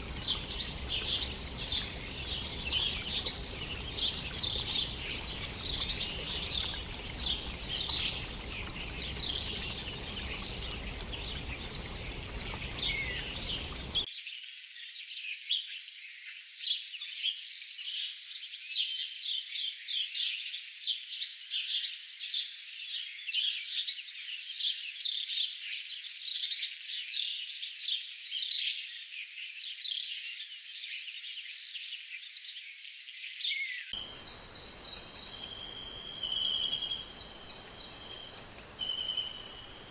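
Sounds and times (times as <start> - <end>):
birds chirping: 0.0 - 14.1, 34.0 - 39.9.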